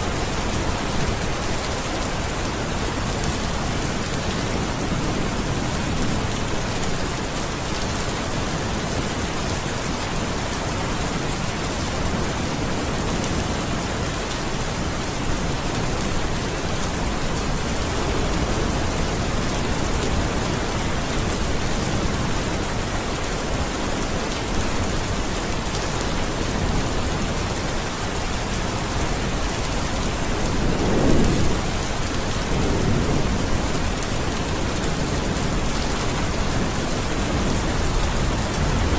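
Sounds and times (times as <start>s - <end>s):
steady rain falling: 0.0s - 38.9s
low rumble of thunder: 28.6s - 38.9s.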